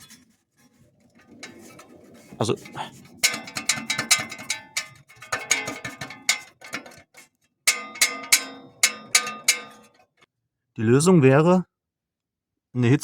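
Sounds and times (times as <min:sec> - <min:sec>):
sheet metal heat shield rattling: 0:00.0 - 0:10.2.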